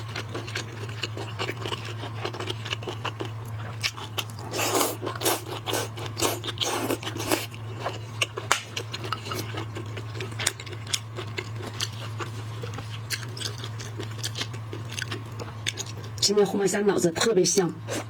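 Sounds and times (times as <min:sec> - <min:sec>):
shrimp shells crunching: 0:00.0 - 0:16.2
chewing: 0:00.0 - 0:16.3
steady low hum: 0:00.0 - 0:18.0.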